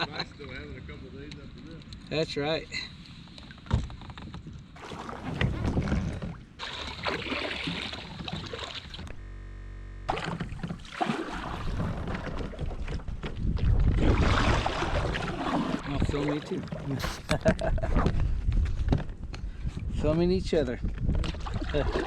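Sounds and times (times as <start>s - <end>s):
water and kayak hull noise: 1.3s - 9.3s, 10.1s - 20.0s, 20.8s - 22.0s.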